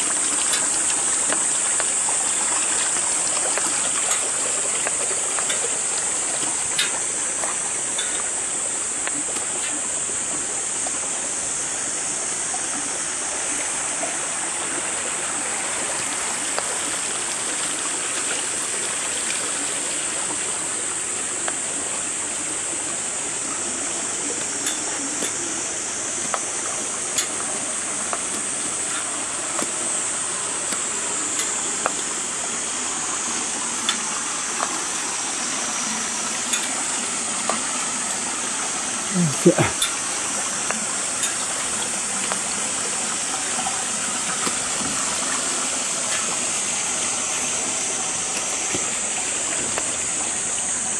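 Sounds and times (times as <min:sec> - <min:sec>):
running water rushing: 0:00.0 - 0:50.9
faint sharp ticks: 0:00.3 - 0:09.9, 0:24.2 - 0:25.5, 0:30.6 - 0:32.1.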